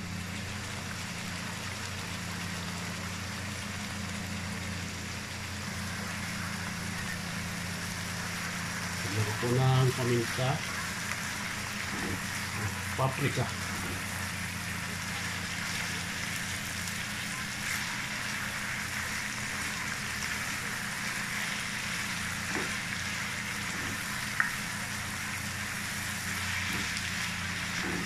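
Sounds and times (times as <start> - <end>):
food sizzling in a wok: 0.0 - 28.0
spatula stirring: 20.5 - 28.0.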